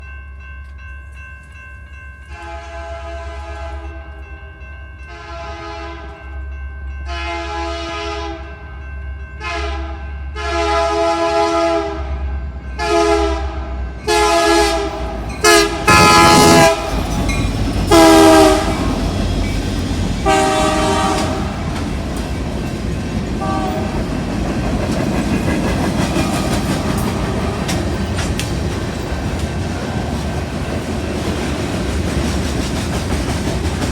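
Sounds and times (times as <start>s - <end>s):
train rumble and wheel noise: 0.0s - 33.9s
locomotive air horn blasts: 2.4s - 4.2s, 5.1s - 6.2s, 7.1s - 8.4s, 9.4s - 17.1s, 17.9s - 19.2s, 20.2s - 21.7s, 23.4s - 24.0s.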